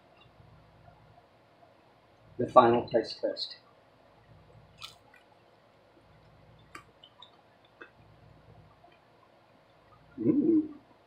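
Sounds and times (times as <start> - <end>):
crunching of crisp snack: 4.8 - 5.3
low mouth sounds: 9.9 - 10.9.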